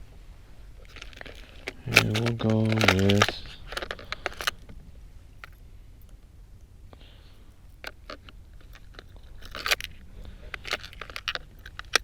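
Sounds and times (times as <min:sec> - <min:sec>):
fishing tackle clicking and rattling: 0:00.8 - 0:04.7, 0:07.7 - 0:12.0.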